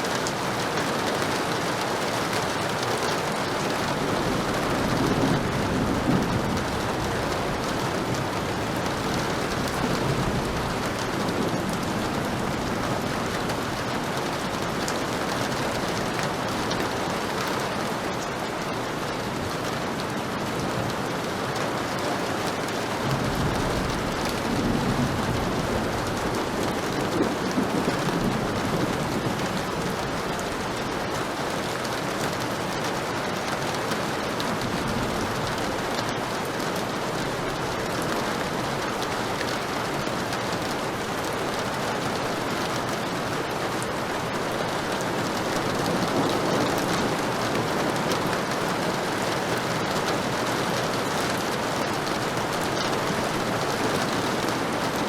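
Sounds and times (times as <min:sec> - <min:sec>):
heavy rain falling: 0:00.0 - 0:55.0
thunder rumbling: 0:03.5 - 0:17.9, 0:22.9 - 0:31.4, 0:34.4 - 0:55.0.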